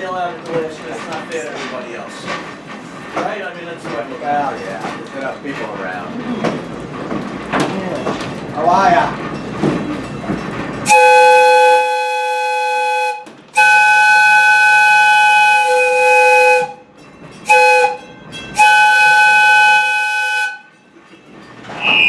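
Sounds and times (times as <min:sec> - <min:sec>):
steam locomotive chime whistle: 0:10.8 - 0:20.8, 0:21.7 - 0:22.0.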